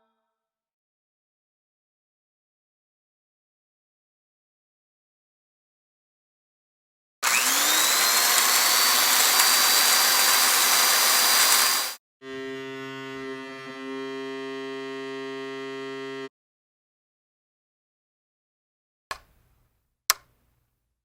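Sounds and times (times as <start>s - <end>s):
small motorised machine whirring: 7.2s - 16.3s.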